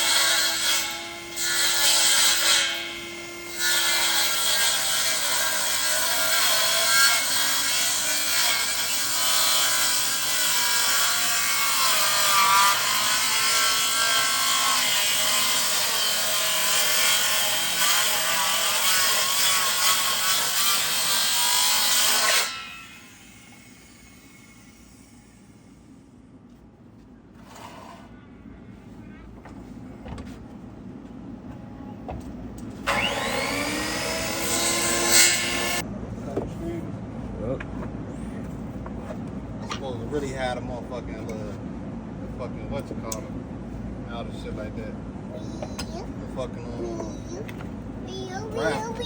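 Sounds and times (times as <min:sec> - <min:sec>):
power saw cutting wood: 0:00.0 - 0:25.2, 0:32.8 - 0:35.8.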